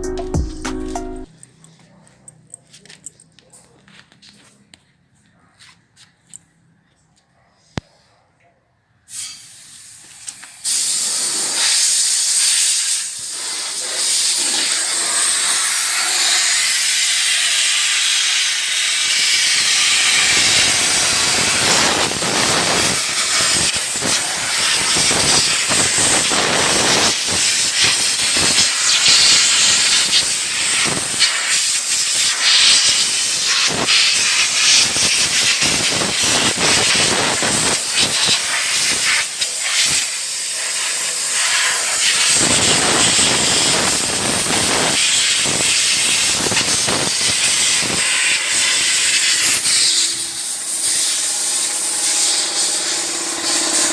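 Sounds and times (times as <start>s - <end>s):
compressed air hissing: 9.1s - 53.9s.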